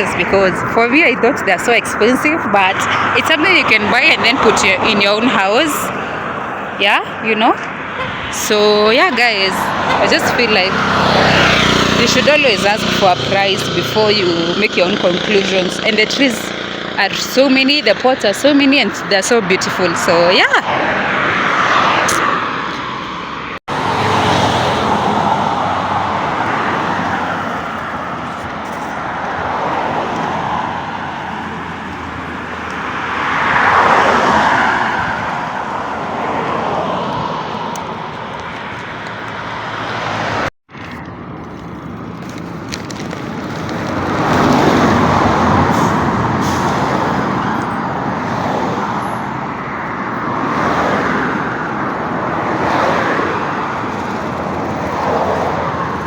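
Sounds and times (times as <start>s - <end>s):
road traffic: 0.0s - 56.0s
vehicles passing: 0.0s - 56.0s.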